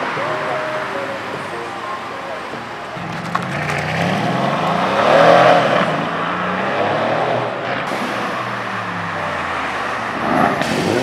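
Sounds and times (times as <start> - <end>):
car engine revving: 2.6 - 11.0.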